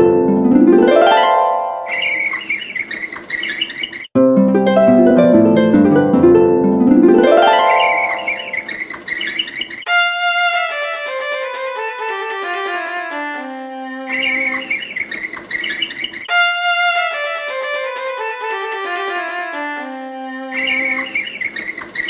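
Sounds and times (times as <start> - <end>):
violin playing scales: 0.0 - 2.4, 4.5 - 8.7, 9.9 - 14.1, 16.3 - 20.5.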